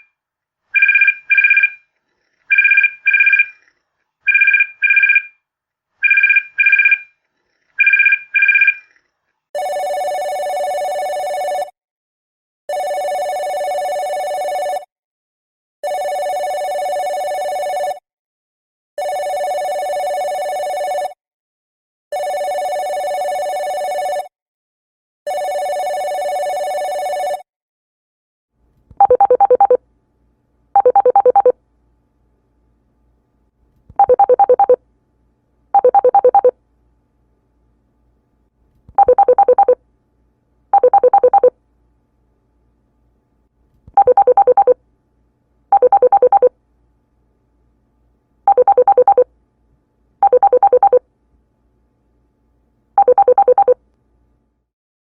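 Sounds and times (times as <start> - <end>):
long electronic telephone rings: 9.6 - 11.8, 12.7 - 14.9, 15.8 - 18.0, 19.0 - 21.2, 22.1 - 24.3, 25.3 - 27.4, 30.8 - 31.6, 35.8 - 36.6, 39.0 - 39.8, 44.0 - 44.8, 45.8 - 46.5, 48.5 - 49.3, 50.2 - 51.0, 53.0 - 53.8
fluttering trilled telephone rings: 19.0 - 21.2.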